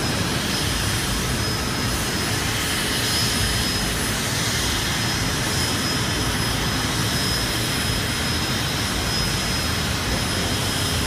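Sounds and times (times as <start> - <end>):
helicopter engine and rotor: 0.0 - 11.0
high whine: 0.0 - 11.0.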